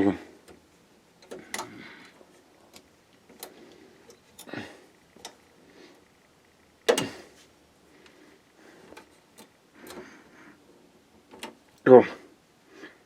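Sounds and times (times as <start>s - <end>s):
cables and connectors clicking: 0.0s - 5.5s, 6.3s - 7.3s, 8.8s - 10.3s, 11.2s - 11.9s.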